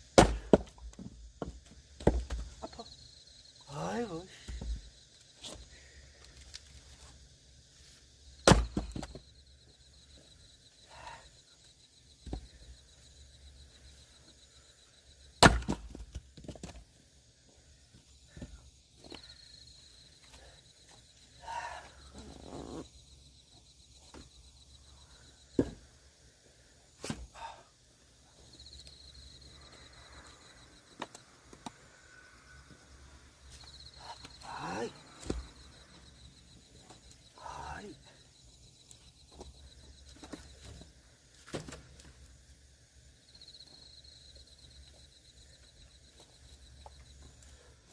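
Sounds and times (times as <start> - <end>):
axe striking log: 0.2 - 2.4, 8.4 - 9.2, 15.4 - 16.8, 25.6 - 25.8
insect trilling faintly: 16.9 - 41.4.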